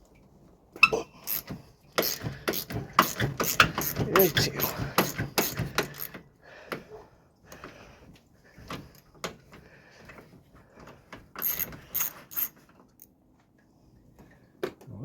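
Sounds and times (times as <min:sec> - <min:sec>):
hand ratchet clicking: 0:01.2 - 0:06.2, 0:11.4 - 0:12.5
metal parts clinking: 0:11.4 - 0:13.1.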